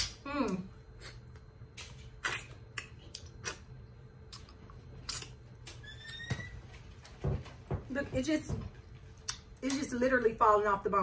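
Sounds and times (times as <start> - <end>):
low steady hum: 0.0 - 11.0
wet chewing and smacking: 4.3 - 5.8
faint rising squeak: 5.8 - 6.7.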